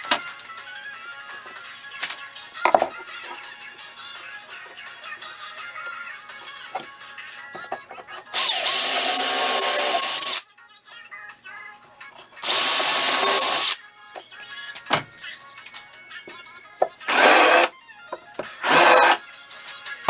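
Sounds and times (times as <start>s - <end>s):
background music: 0.0s - 20.0s
power tool running: 8.4s - 10.4s, 12.4s - 13.8s, 17.1s - 17.7s, 18.6s - 19.2s.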